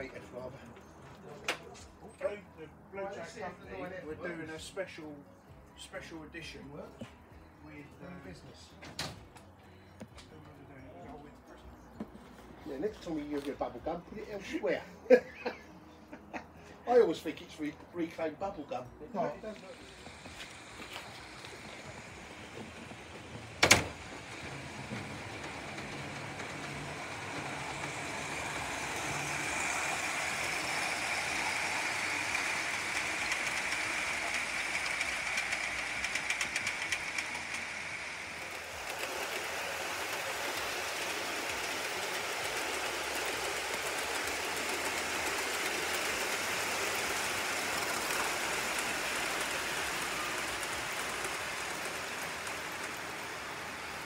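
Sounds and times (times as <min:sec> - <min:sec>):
model train wheels on rail: 0:00.0 - 0:04.9, 0:16.9 - 0:54.0.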